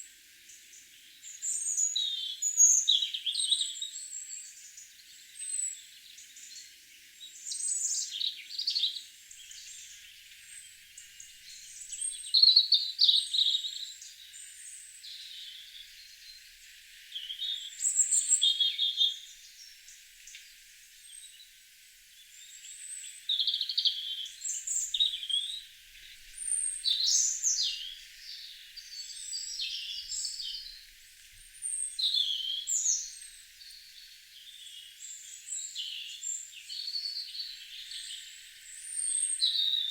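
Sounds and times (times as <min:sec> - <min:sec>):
birds chirping and warbling: 0:22.4 - 0:30.9.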